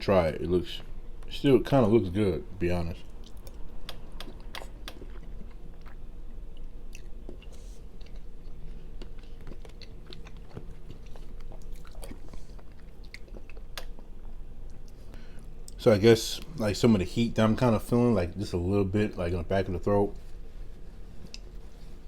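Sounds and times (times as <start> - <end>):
steady low hum: 0.0 - 22.0
person chewing food: 3.0 - 15.8
small wet mouth clicks: 3.2 - 5.2.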